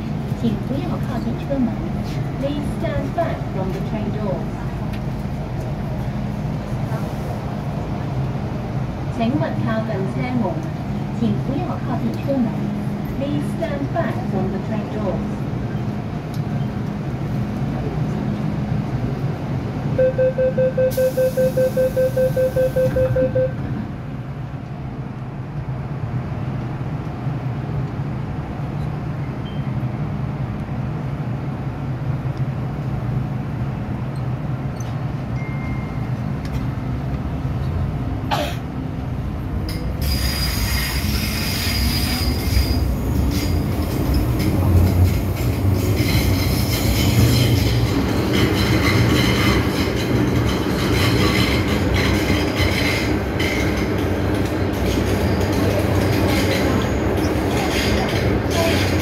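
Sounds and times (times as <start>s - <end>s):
train running rumble: 0.0s - 20.2s, 20.9s - 59.0s
rapid pulsing warning beep: 20.0s - 23.6s
wheels on rail: 39.0s - 59.0s.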